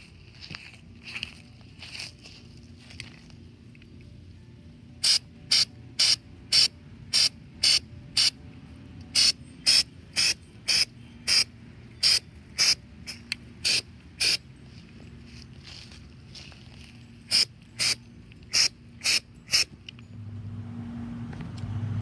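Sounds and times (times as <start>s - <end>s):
spray can hissing in bursts: 5.0s - 8.3s, 9.2s - 14.4s, 17.3s - 19.7s.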